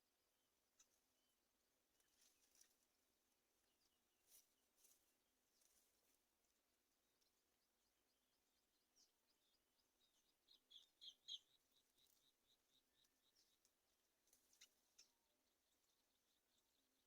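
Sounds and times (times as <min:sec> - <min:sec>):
high-pitched bird chirps: 0:10.5 - 0:11.6.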